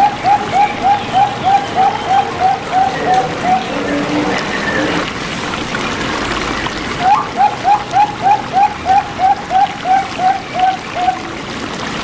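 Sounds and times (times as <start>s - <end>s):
dove cooing: 0.0s - 5.0s, 7.0s - 11.3s
water trickling: 0.0s - 12.0s.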